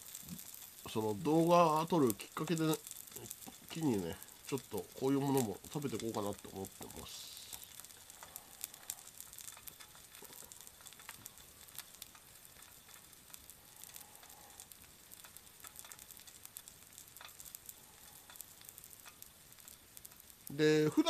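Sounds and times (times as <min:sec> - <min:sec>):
crackles and pops: 0:00.0 - 0:21.0
food sizzling on hot plate: 0:00.0 - 0:21.0.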